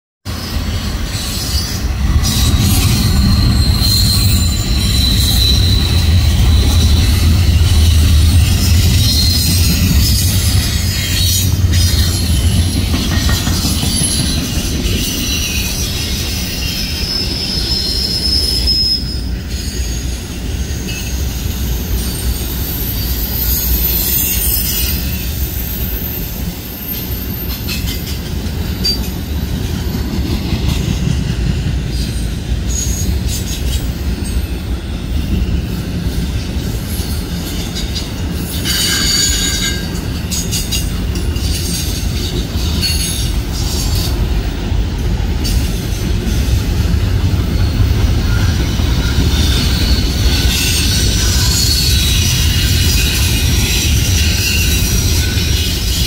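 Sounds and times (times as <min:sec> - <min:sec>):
train wheels rumbling on rails: 0:00.2 - 0:56.0
high-pitched wheel squeal: 0:00.4 - 0:28.2, 0:37.7 - 0:40.8, 0:47.4 - 0:56.0.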